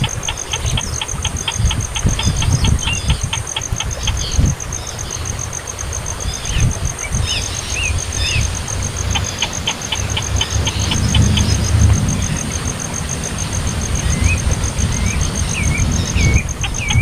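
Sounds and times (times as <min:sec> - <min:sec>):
insect trilling: 0:00.0 - 0:17.0
low rumble: 0:06.7 - 0:17.0.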